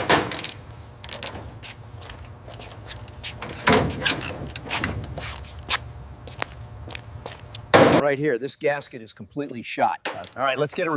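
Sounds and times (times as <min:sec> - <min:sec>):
tools and parts clattering: 0:00.0 - 0:02.8, 0:03.4 - 0:05.2, 0:10.0 - 0:10.9
steady low hum: 0:00.0 - 0:10.9.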